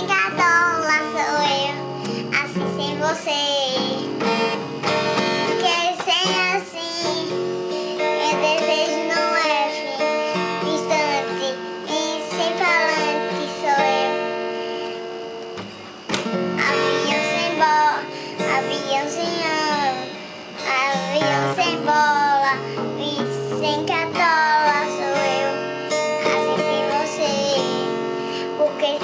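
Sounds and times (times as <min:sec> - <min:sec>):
acoustic guitar: 0:00.0 - 0:29.0
high voice singing: 0:08.2 - 0:14.3, 0:16.6 - 0:29.0.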